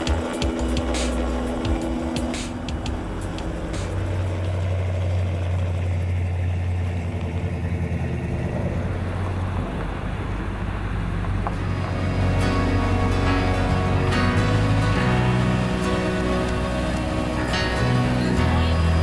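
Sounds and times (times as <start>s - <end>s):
helicopter rotor and engine drone: 0.0s - 19.0s.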